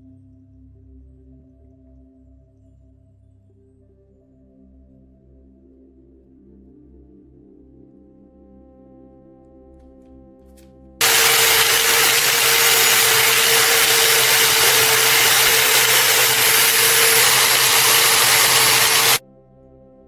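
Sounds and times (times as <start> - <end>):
power tool grinding steel: 11.0 - 19.2.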